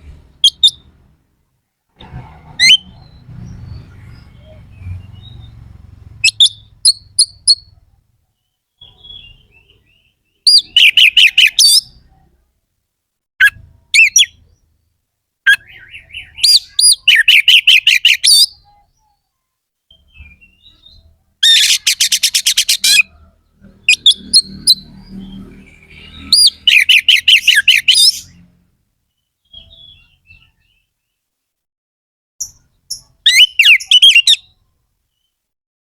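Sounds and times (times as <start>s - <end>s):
songbird singing harsh notes: 0.4s - 0.9s, 2.6s - 7.8s, 8.4s - 12.2s, 13.4s - 14.6s, 15.5s - 19.2s, 19.9s - 23.2s, 23.8s - 28.4s, 32.4s - 34.6s.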